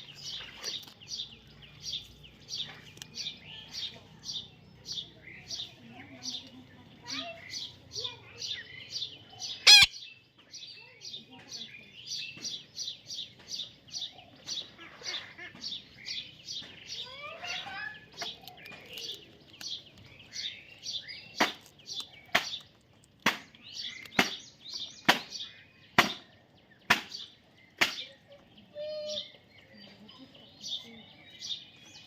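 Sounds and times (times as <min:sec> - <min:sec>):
baby parrot chirping: 0:09.5 - 0:10.1, 0:16.9 - 0:19.2.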